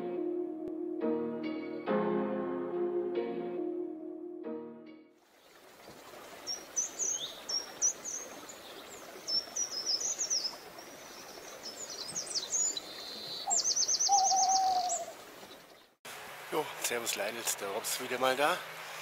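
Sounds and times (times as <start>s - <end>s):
soft tune: 0.0s - 5.1s
small birds chirping: 5.3s - 16.0s
outdoor hiss: 14.9s - 19.0s.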